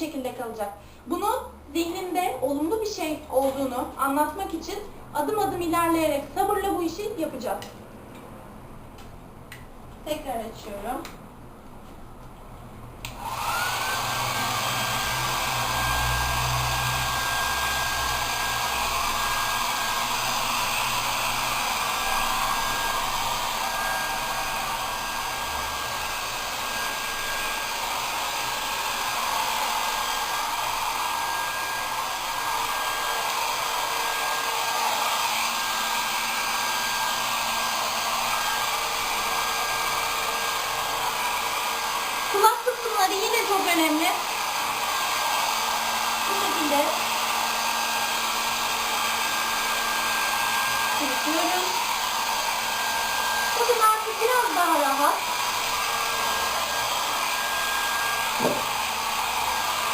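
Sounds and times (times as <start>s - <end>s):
blow dryer running: 13.0s - 59.9s.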